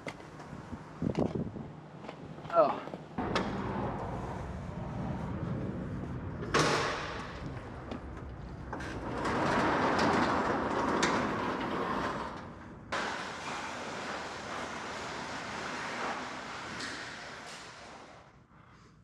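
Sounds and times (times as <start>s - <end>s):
overhead door sliding on tracks: 3.2s - 18.4s.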